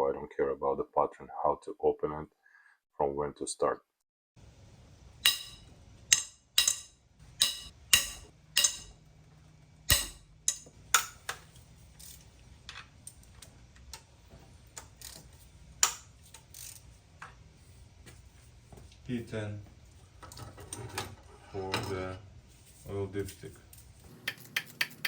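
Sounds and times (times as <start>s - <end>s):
hand tools clicking on metal: 5.2s - 9.0s, 9.9s - 12.3s, 14.7s - 16.9s, 23.4s - 25.0s.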